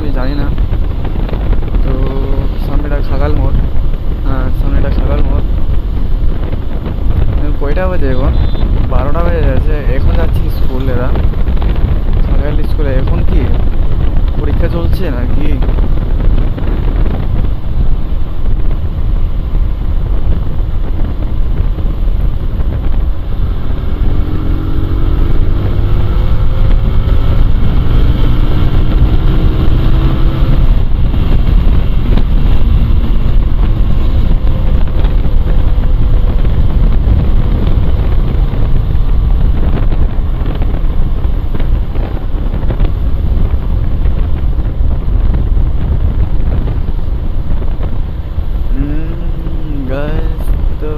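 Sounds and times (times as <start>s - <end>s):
wind rushing over microphone: 0.0s - 50.9s
motorcycle engine accelerating: 15.2s - 50.9s.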